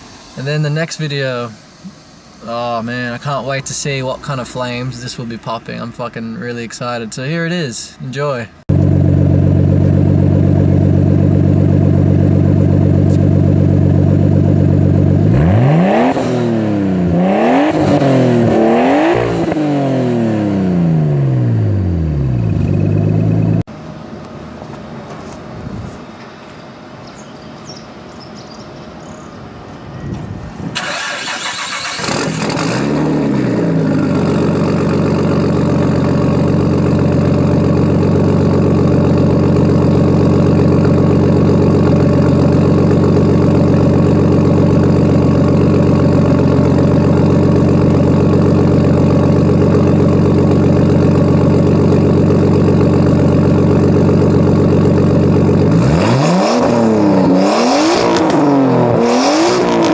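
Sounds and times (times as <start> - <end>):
car engine idling and revving: 8.6 - 24.0, 30.1 - 59.9
starter motor cranking: 30.8 - 32.8.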